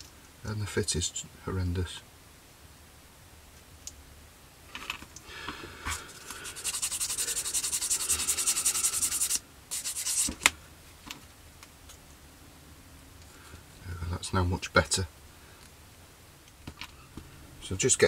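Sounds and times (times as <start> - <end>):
plastic part being sanded: 5.9 - 10.4.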